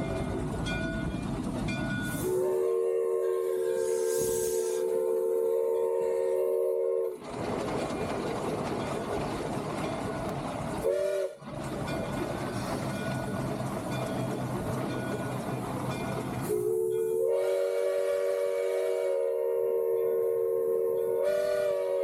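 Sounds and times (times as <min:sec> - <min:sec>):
steam locomotive working: 0:00.0 - 0:22.0
steam locomotive whistle: 0:02.0 - 0:07.2, 0:10.8 - 0:11.4, 0:16.4 - 0:22.0.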